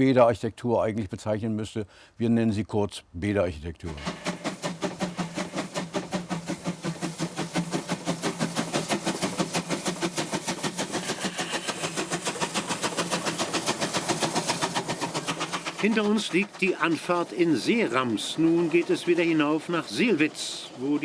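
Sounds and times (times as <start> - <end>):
steam locomotive chuffing: 3.9 - 21.0.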